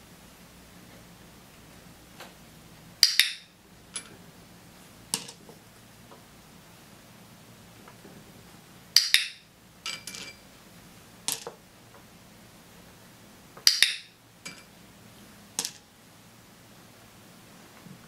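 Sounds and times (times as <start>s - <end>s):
small objects clattering on table: 5.1s - 5.6s, 9.9s - 10.4s, 11.3s - 11.6s, 15.6s - 15.8s.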